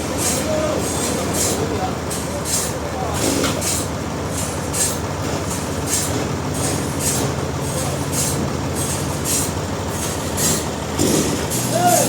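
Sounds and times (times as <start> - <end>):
sawmill machinery humming: 0.0 - 12.0.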